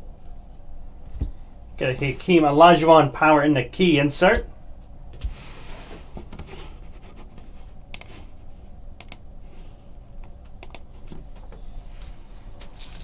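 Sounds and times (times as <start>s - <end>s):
cards sliding and rustling: 12.0s - 13.0s.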